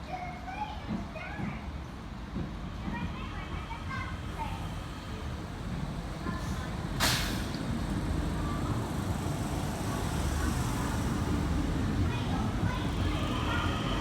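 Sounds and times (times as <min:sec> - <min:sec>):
train rumble: 0:00.1 - 0:14.0
train air hiss: 0:06.4 - 0:07.7.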